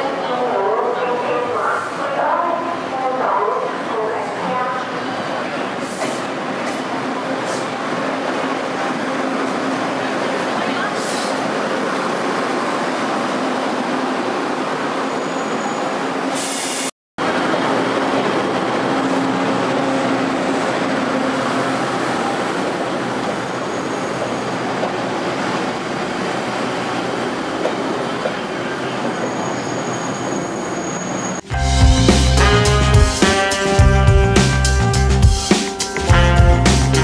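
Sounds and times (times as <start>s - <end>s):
diesel railcar pulling out: 3.8s - 37.0s
train wheels rumbling on rails: 17.2s - 31.5s.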